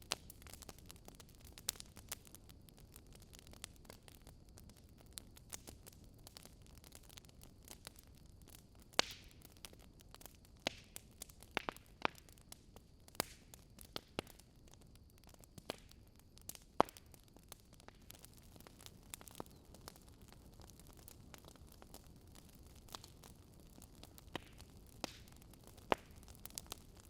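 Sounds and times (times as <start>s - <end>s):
burning logs crackling and popping: 0.0s - 27.0s.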